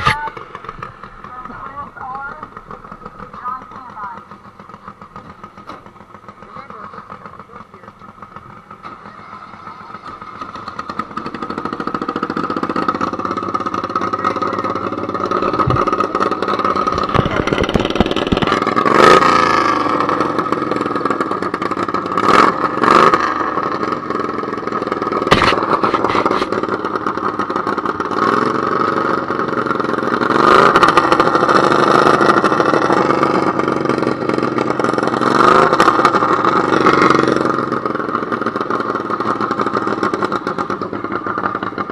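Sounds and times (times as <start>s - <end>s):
garden tractor engine revving: 0.0s - 41.9s
sharp cracks: 13.1s - 20.6s, 25.1s - 28.4s.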